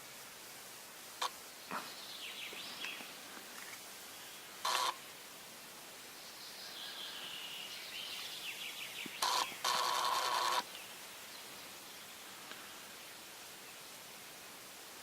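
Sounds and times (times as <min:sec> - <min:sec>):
small birds chirping and trilling: 0:01.6 - 0:05.0, 0:06.2 - 0:12.2
loud harsh bird calls: 0:09.2 - 0:10.7.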